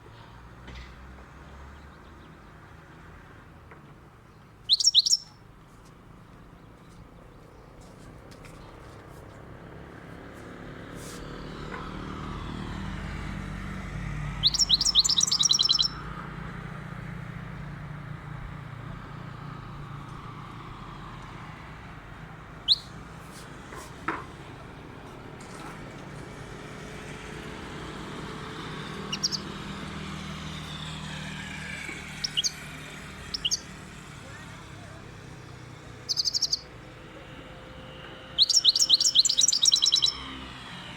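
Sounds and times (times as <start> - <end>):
goldfinch twittering calls: 4.6 - 5.4, 14.3 - 16.0, 22.6 - 23.0, 28.7 - 30.7, 32.0 - 33.8, 36.0 - 36.7, 38.3 - 40.3.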